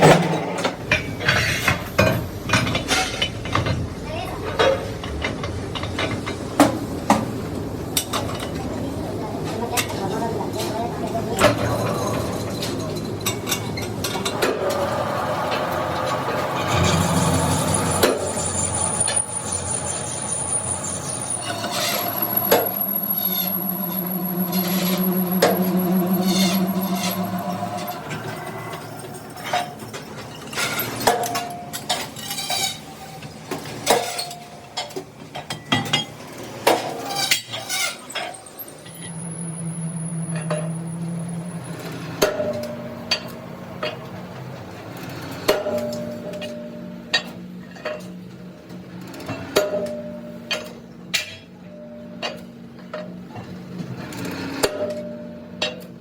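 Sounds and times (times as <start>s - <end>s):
low hum: 14.2s - 30.2s, 38.4s - 43.9s.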